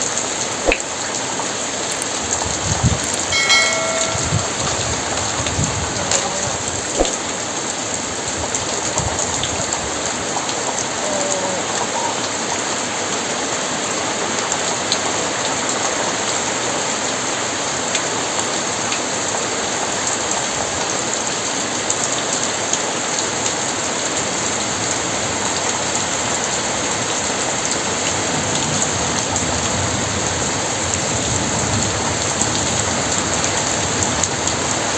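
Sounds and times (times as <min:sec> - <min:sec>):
sharp drips or knocks: 0:03.3 - 0:04.9
heavy rain falling: 0:04.6 - 0:34.9.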